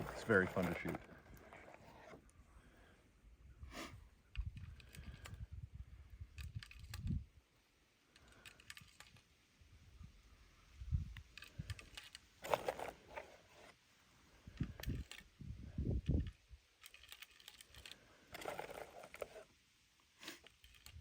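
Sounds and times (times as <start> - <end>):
handling clicks and rattles: 0.0 - 2.2, 11.2 - 13.4, 16.0 - 19.5.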